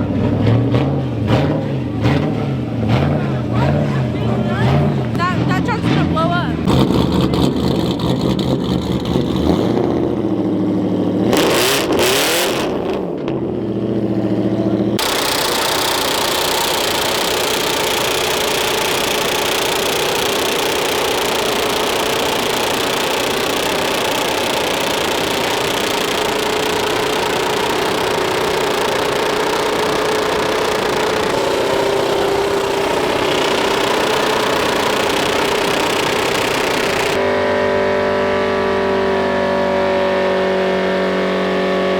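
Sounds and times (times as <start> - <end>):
truck engine revving: 0.0 - 41.9
spinning tyres hissing: 0.3 - 5.2, 15.0 - 37.3.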